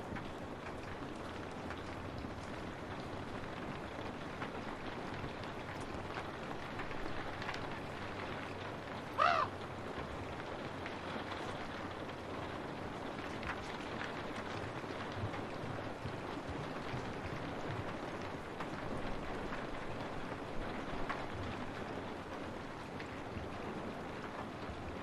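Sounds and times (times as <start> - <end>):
rain on a window: 0.0 - 25.0
crow cawing: 9.2 - 9.5.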